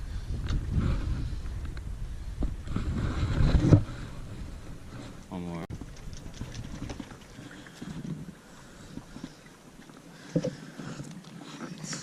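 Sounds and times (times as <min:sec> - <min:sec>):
small boat on water: 0:00.0 - 0:12.0.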